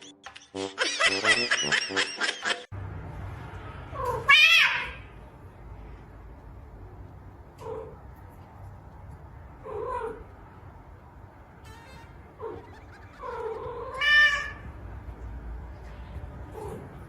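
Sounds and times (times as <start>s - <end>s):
cat meowing: 11.6s - 14.7s.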